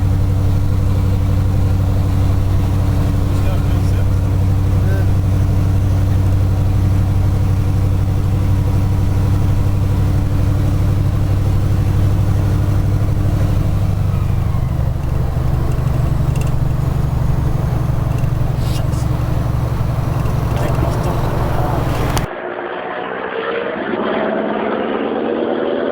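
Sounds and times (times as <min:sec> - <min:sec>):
diesel engine running: 0:00.0 - 0:22.3.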